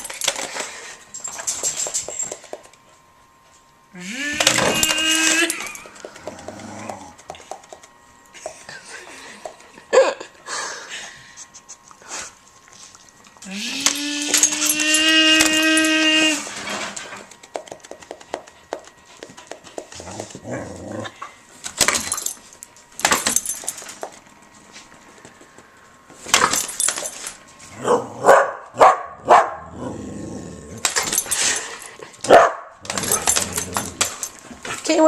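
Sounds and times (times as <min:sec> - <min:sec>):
dog barking: 0:27.8 - 0:29.7, 0:32.3 - 0:32.8.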